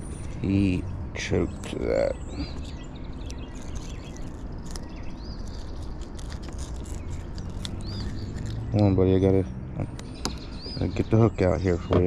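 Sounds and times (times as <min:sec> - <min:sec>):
small bird chirping: 0:00.0 - 0:12.0
handling clicks and scrapes: 0:02.4 - 0:08.7.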